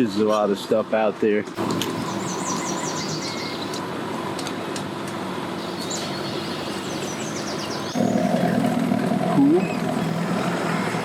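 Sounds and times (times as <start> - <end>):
birds chirping: 1.6 - 3.8, 5.6 - 8.8.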